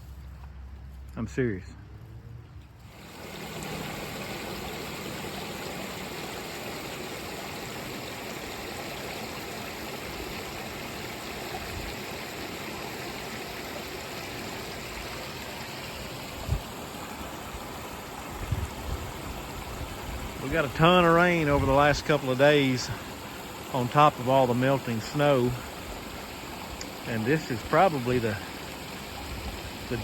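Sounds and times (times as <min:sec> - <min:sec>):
water rushing in creek: 0:02.8 - 0:30.0.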